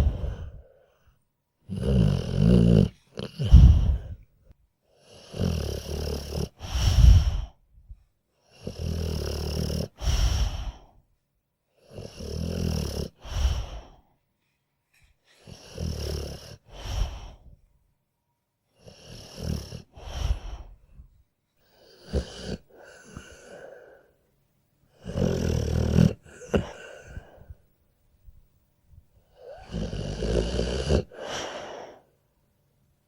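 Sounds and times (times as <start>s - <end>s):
dog snoring: 0.0s - 0.7s, 1.6s - 4.3s, 5.0s - 7.6s, 8.5s - 10.9s, 11.8s - 14.0s, 15.3s - 17.6s, 18.8s - 21.0s, 21.8s - 24.0s, 24.9s - 27.6s, 29.3s - 32.0s.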